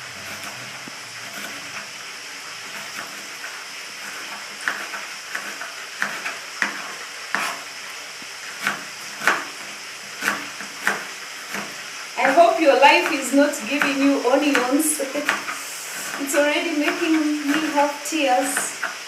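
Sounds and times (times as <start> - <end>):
food sizzling in oil: 0.0 - 19.0
knife chopping on cutting board: 0.2 - 1.8, 4.1 - 7.7, 8.5 - 12.4, 13.8 - 17.8.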